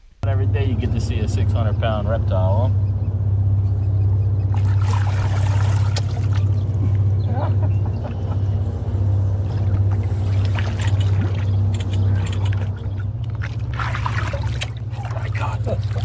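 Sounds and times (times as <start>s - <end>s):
boat engine humming: 0.0s - 16.0s
water splashes and knocks: 4.5s - 7.1s, 9.5s - 16.0s.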